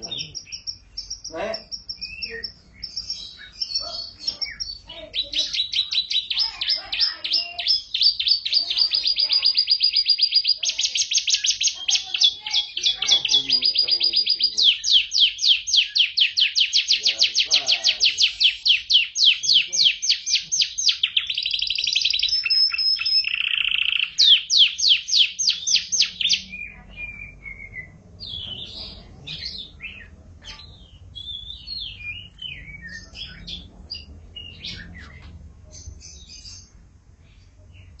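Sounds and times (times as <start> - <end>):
canary singing trills: 0.0 - 38.0.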